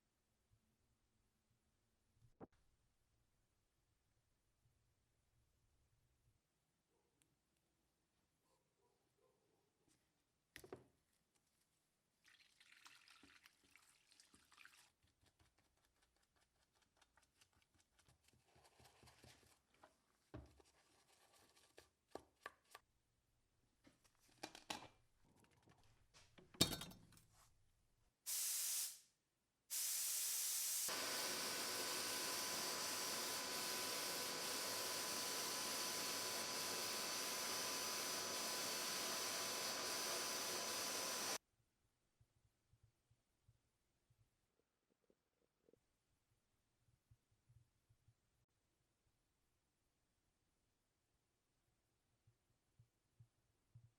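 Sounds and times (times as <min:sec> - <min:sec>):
loud steady hiss: 0:28.3 - 0:29.0, 0:29.7 - 0:41.4.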